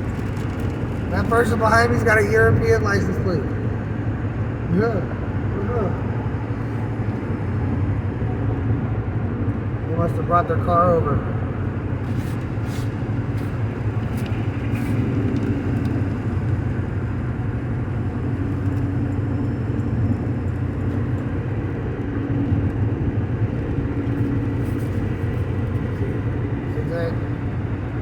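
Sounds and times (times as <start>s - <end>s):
engine and tyre drone: 0.0s - 28.0s.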